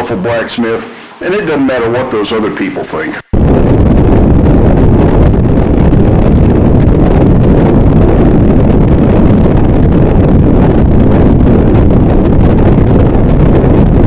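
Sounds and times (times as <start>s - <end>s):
harsh distorted noise wall: 0.0s - 14.0s.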